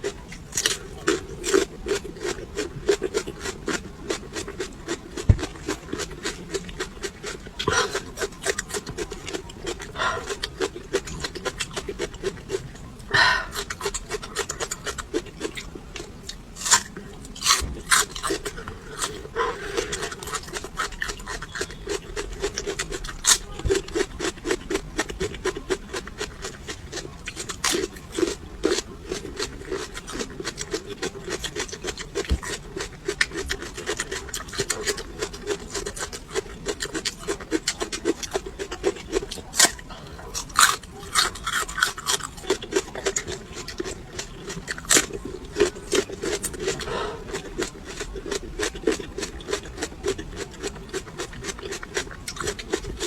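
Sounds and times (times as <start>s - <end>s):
crunchy chewing of peppers: 0.0s - 53.0s.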